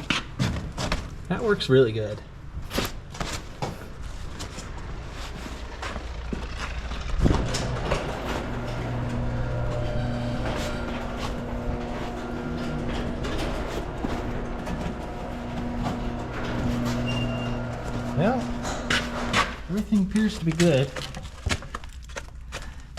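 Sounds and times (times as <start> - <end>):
knocks and clatter: 3.1 - 22.4
truck engine humming: 3.9 - 20.8.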